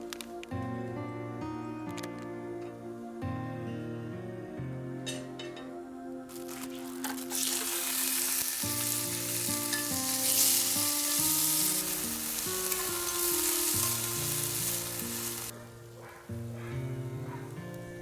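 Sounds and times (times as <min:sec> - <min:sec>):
food sizzling in a pan: 0:06.3 - 0:15.6.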